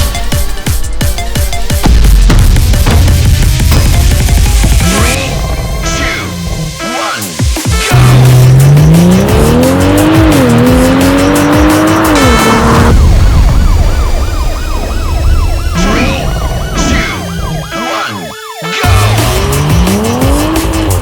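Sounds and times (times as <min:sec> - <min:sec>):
electronic music with wobbling tone: 0:00.0 - 0:21.0
car engine accelerating: 0:07.8 - 0:14.4, 0:18.8 - 0:21.0.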